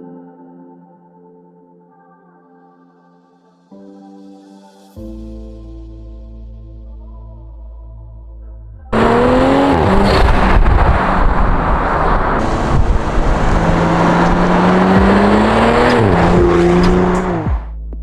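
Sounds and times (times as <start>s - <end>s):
car engine accelerating hard: 8.9s - 17.7s.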